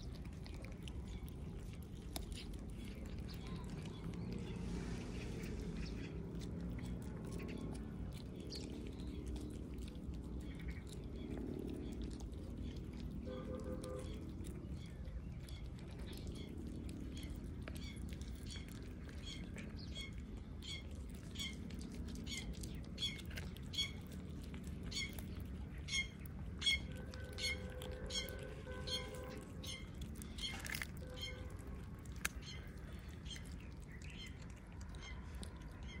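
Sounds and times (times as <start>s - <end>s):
cats chewing: 0.0s - 36.0s
low background hum: 0.0s - 36.0s
small bird chirping: 17.1s - 21.6s, 22.2s - 24.1s, 24.9s - 36.0s.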